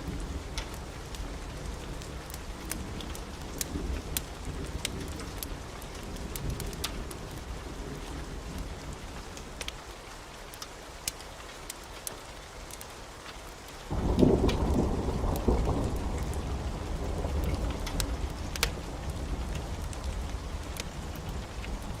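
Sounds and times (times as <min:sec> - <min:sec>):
heavy rain: 0:00.0 - 0:22.0
thunderclap rumbling: 0:13.9 - 0:22.0.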